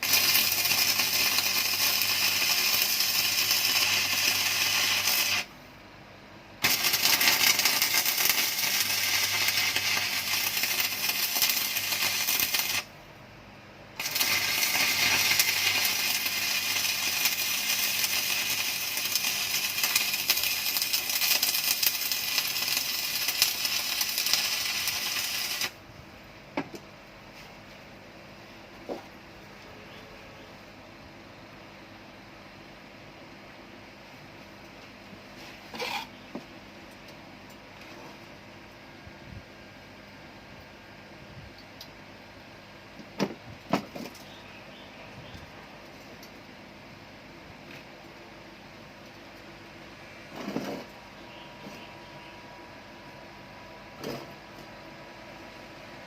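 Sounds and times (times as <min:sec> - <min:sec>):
welding arc crackling: 0:00.0 - 0:05.6, 0:06.6 - 0:13.0, 0:14.0 - 0:25.8.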